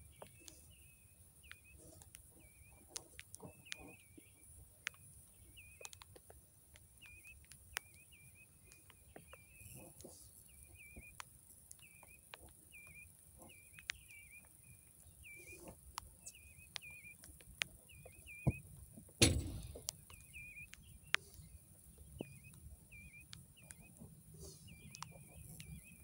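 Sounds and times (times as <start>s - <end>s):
bird chirping call: 0.0s - 6.0s, 7.0s - 18.6s, 19.2s - 26.0s
faint clicks: 0.0s - 26.0s
loud thump: 19.2s - 19.8s.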